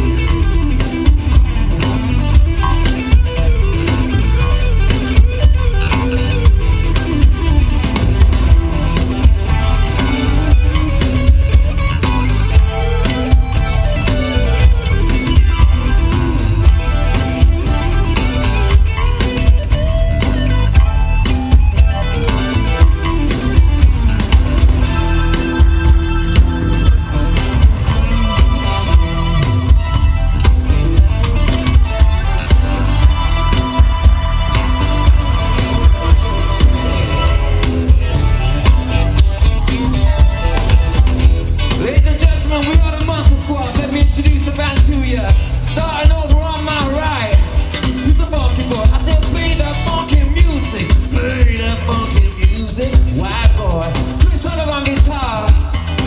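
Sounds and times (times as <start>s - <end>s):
bass guitar: 0.0s - 56.0s
drum kit steady beat: 0.0s - 56.0s
electric guitar: 0.0s - 56.0s
live band playing: 0.0s - 56.0s.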